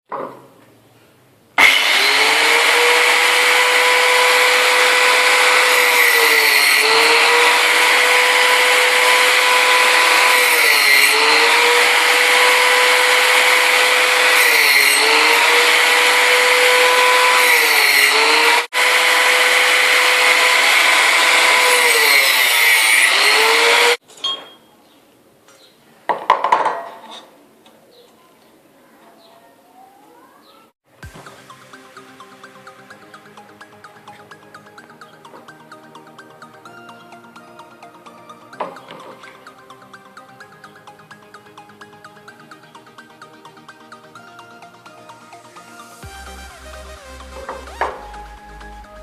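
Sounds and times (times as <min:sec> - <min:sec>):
angle grinder cutting: 0:01.6 - 0:24.0.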